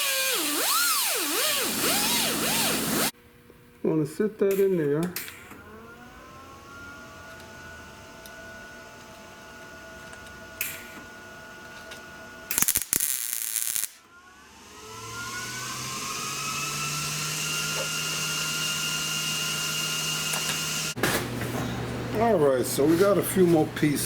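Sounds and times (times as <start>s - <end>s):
motor whining: 0.0s - 3.1s, 14.1s - 21.0s
welding crackling: 12.5s - 14.0s.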